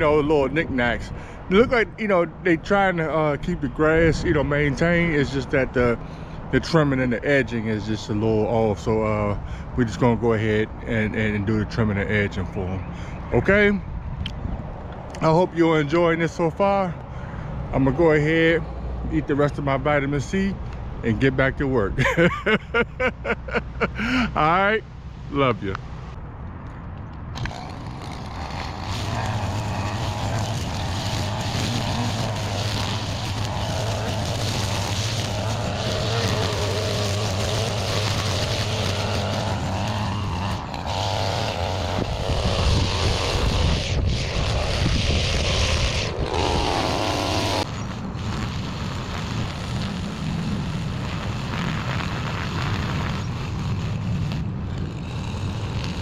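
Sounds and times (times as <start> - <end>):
string trimmer engine running: 27.4 - 56.0.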